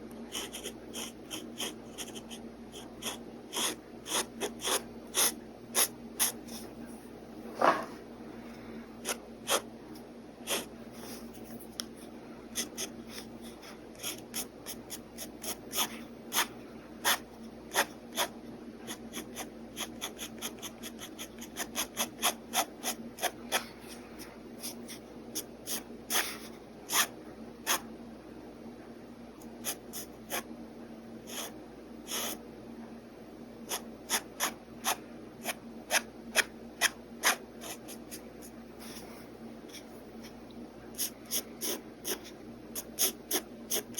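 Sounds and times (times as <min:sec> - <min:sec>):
steady low hum: 0:00.0 - 0:43.9
pen scratching on paper: 0:00.3 - 0:06.7, 0:09.0 - 0:09.7, 0:10.4 - 0:11.2, 0:12.6 - 0:23.7, 0:24.6 - 0:27.9, 0:29.6 - 0:30.5, 0:31.3 - 0:32.4, 0:33.7 - 0:39.0, 0:41.0 - 0:43.9.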